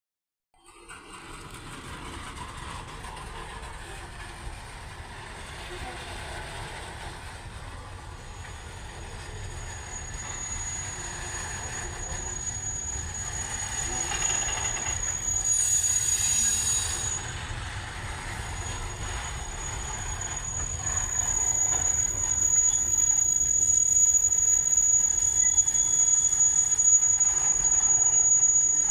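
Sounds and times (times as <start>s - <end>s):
train brakes squealing: 0.6s - 28.9s
low train rumble: 0.7s - 28.9s.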